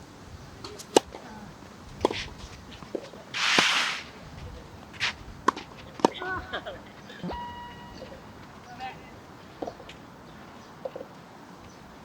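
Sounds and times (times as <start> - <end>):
tennis balls struck by rackets: 0.6 - 1.3, 1.9 - 10.1
short hiss: 3.3 - 4.2.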